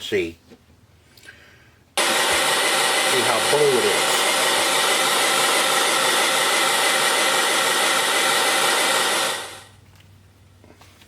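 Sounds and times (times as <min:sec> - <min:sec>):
fan rushing air: 0:01.4 - 0:11.0.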